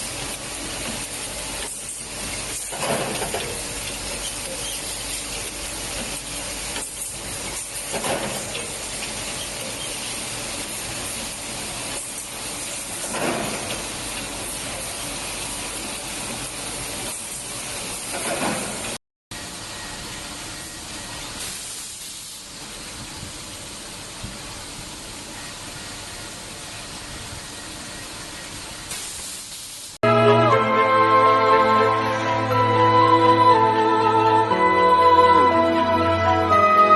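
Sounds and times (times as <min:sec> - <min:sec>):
hiss of rushing air: 0:00.0 - 0:19.0, 0:21.3 - 0:25.4, 0:26.3 - 0:30.0.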